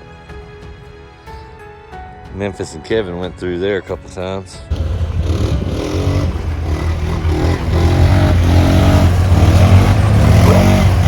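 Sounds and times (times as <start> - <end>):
vehicle engine humming: 4.7 - 11.0.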